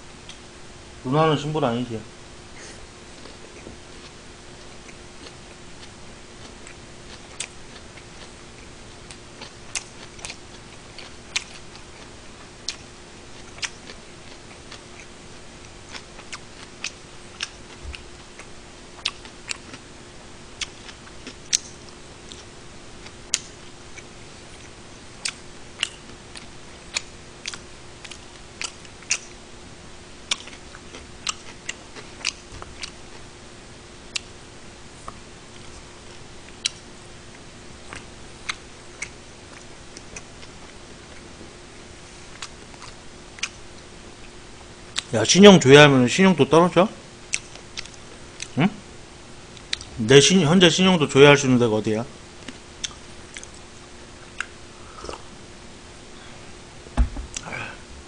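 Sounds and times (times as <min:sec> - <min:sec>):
person chewing: 0:02.6 - 0:19.8, 0:20.6 - 0:29.4, 0:30.2 - 0:33.3, 0:37.8 - 0:41.3, 0:42.2 - 0:43.6, 0:47.3 - 0:48.6, 0:49.6 - 0:50.0, 0:52.4 - 0:53.6, 0:54.2 - 0:55.4, 0:56.2 - 0:58.0
wet mouth clicks: 0:49.6 - 0:50.0, 0:52.8 - 0:53.6, 0:54.3 - 0:55.3, 0:57.3 - 0:57.5
low hum: 0:54.7 - 0:58.0.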